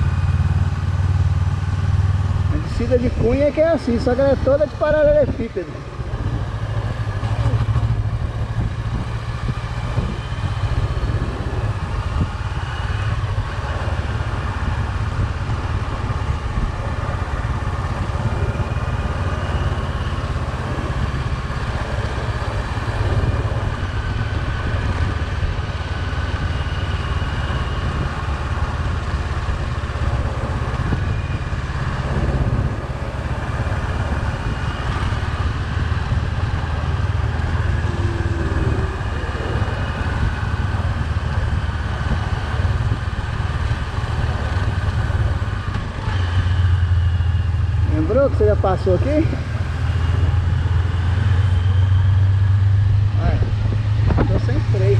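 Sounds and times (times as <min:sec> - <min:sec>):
motorcycle engine running: 0:00.0 - 0:54.9
wind on microphone: 0:05.2 - 0:19.2, 0:29.3 - 0:46.8, 0:49.5 - 0:54.8.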